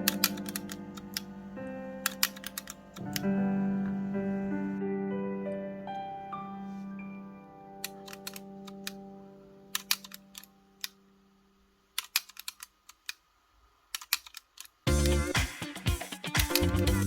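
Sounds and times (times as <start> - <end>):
held piano chord: 0.0 - 9.7
loud music: 14.9 - 17.0.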